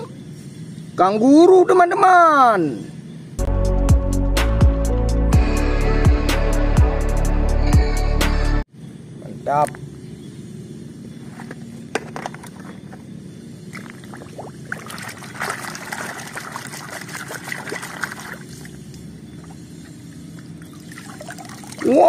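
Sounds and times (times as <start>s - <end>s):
steady low hum: 8.6s - 22.0s
hand splashing in water: 13.8s - 18.6s.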